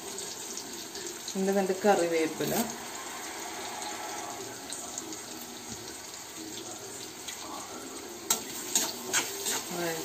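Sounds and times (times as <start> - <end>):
vegetables sizzling in oil: 0.0 - 10.0
spatula clacking against pan: 8.3 - 9.8.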